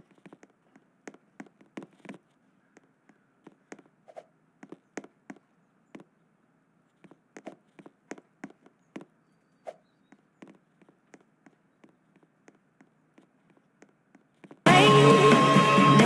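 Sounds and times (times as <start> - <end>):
soft chirps: 8.7 - 10.8.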